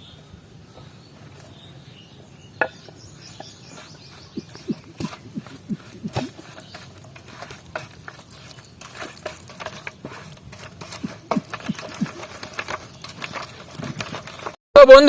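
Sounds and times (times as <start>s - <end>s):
hands squelching wet paste: 3.5s - 14.6s.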